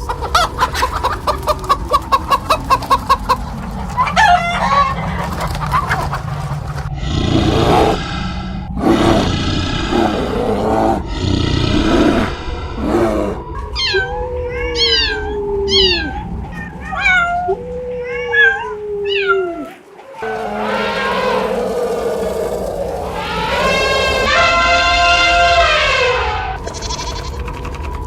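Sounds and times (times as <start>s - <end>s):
animal calling: 0.0s - 28.0s
cat meowing: 13.6s - 21.3s.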